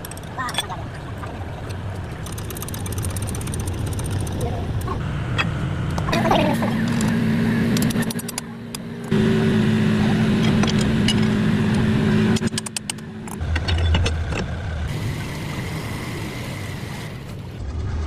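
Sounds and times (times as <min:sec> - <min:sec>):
metallic clicks and knocks: 0:00.0 - 0:00.8, 0:12.4 - 0:14.5
engine rumbling: 0:00.0 - 0:18.0
mechanical hum: 0:00.0 - 0:18.0.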